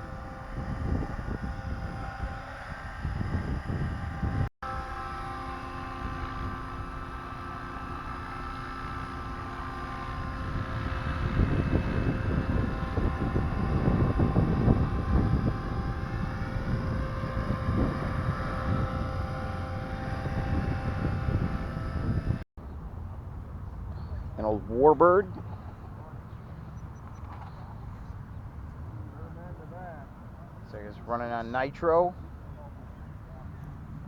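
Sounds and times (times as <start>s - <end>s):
wind rumbling on microphone: 0.0s - 4.5s, 5.9s - 31.2s
model aircraft motor buzzing: 0.0s - 22.4s.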